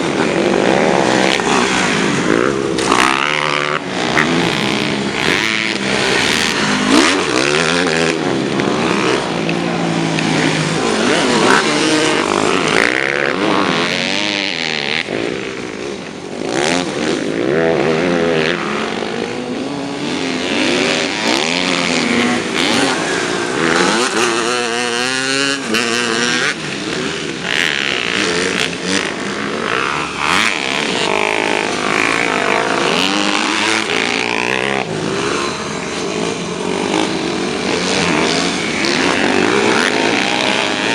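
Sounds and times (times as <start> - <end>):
motocross bike engines revving: 0.0 - 40.9.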